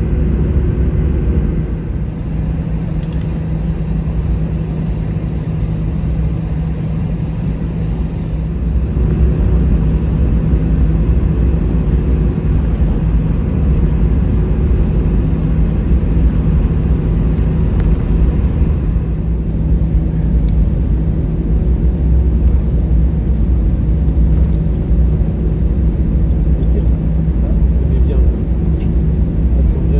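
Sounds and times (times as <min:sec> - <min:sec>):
airplane cabin engine rumble: 0:00.0 - 0:29.9.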